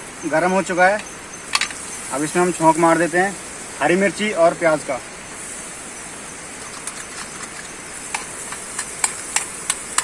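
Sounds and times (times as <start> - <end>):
sharp crackling pops: 0.9 - 3.1, 6.5 - 10.0
onions sizzling in butter: 1.4 - 4.3, 5.2 - 10.0.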